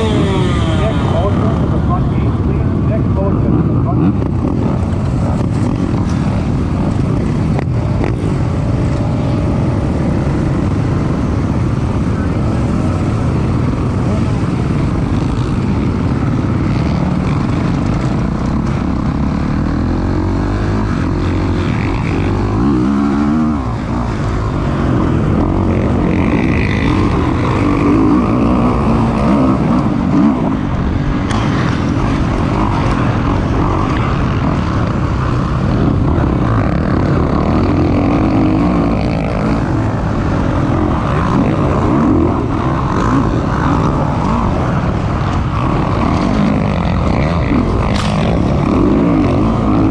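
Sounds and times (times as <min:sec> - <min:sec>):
motocross engine revving: 0:00.0 - 0:49.9.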